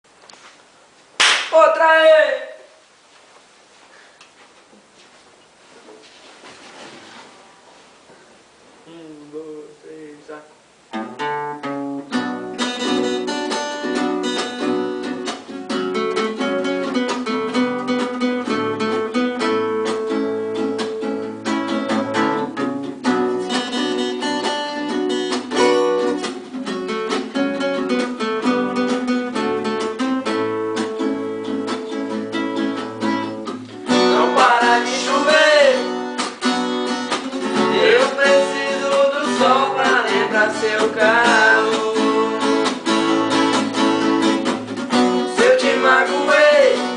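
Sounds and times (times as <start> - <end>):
person singing: 8.8 - 10.4, 33.9 - 36.0, 37.5 - 42.9, 45.2 - 46.9
acoustic guitar playing: 10.8 - 46.9.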